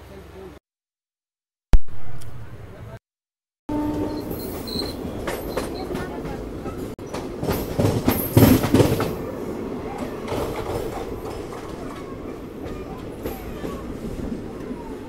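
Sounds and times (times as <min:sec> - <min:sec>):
train wheels rumbling: 0:03.7 - 0:15.0
clickety-clack over rail joints: 0:03.9 - 0:15.0.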